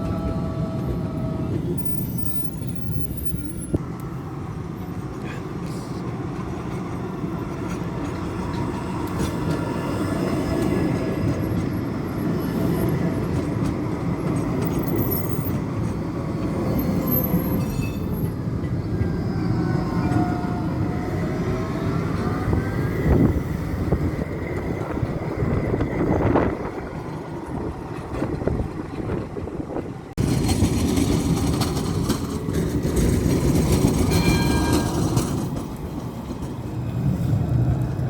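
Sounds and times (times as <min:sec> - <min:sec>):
tram wheels rumbling on rails: 0:00.0 - 0:38.0
wheels squealing: 0:30.2 - 0:35.8.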